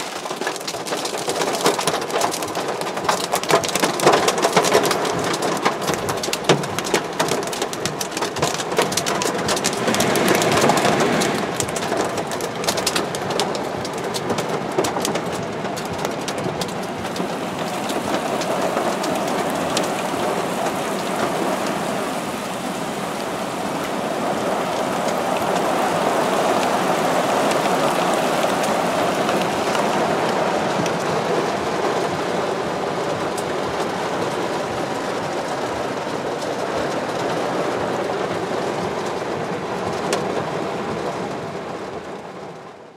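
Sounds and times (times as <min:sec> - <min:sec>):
hailstones pelting: 0:00.0 - 0:42.0
heavy rain pouring: 0:00.0 - 0:42.9.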